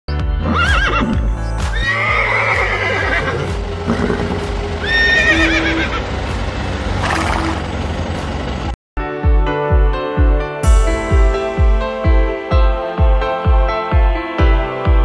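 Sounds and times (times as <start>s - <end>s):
background music: 0.1s - 15.0s
horse whinnying: 0.4s - 6.0s.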